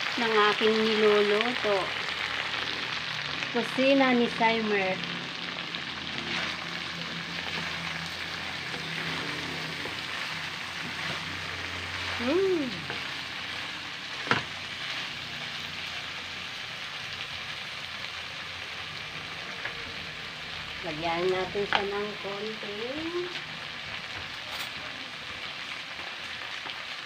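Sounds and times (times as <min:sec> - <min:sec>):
food sizzling in a wok: 0:00.0 - 0:27.0
rising and falling whine: 0:04.8 - 0:14.1
wooden spatula stirring: 0:06.2 - 0:06.7, 0:07.4 - 0:15.5.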